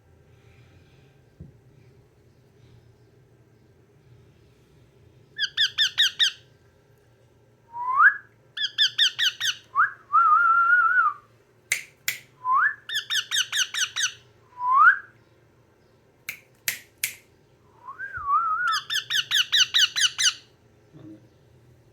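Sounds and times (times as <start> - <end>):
parrot screeching: 5.4 - 6.4, 8.6 - 9.6, 12.9 - 14.2, 18.7 - 20.5.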